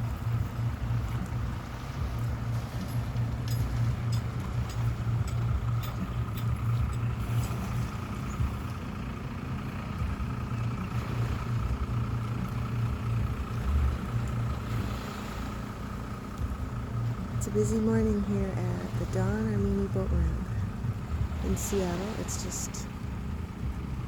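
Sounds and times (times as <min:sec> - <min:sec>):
engine idling: 0:00.0 - 0:24.0
faint steady whine: 0:00.0 - 0:24.0
light ticks: 0:02.1 - 0:08.8, 0:13.2 - 0:14.6, 0:16.3 - 0:17.4.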